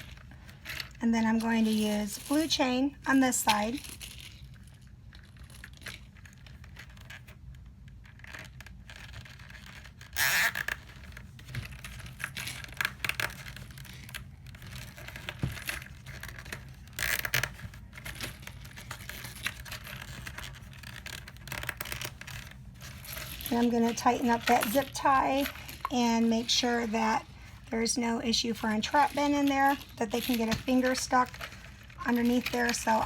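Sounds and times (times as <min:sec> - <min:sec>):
scraping and rustling: 0:00.0 - 0:33.0.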